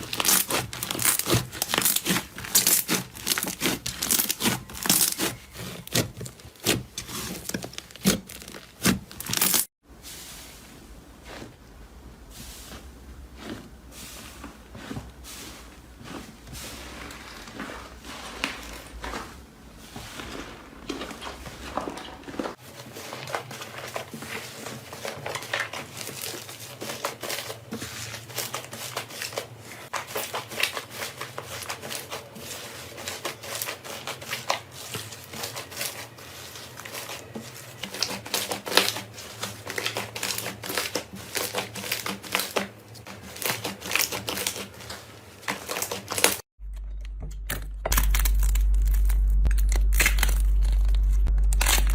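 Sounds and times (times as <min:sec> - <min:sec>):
hands squishing slime crackling: 0:00.0 - 0:09.7, 0:20.0 - 0:46.4.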